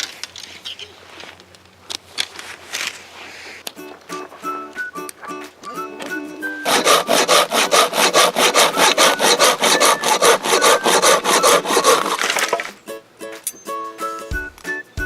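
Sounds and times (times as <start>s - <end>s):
faint background music: 3.7s - 15.0s
hand saw cutting wood: 6.6s - 12.7s.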